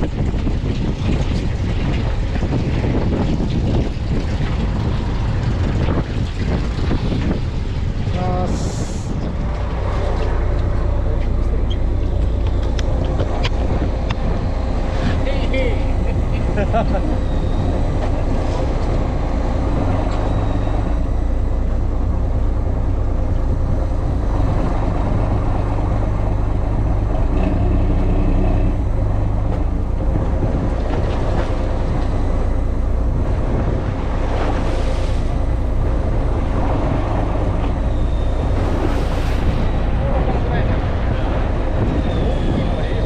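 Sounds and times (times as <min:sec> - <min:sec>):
boat engine rumbling: 0:00.0 - 0:43.0
wind hiss: 0:03.0 - 0:10.0, 0:32.6 - 0:43.0.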